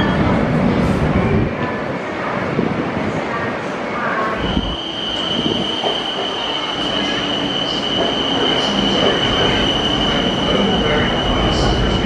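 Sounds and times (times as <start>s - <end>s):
train rumbling past: 4.2s - 12.0s
high-pitched squeal: 4.4s - 11.9s.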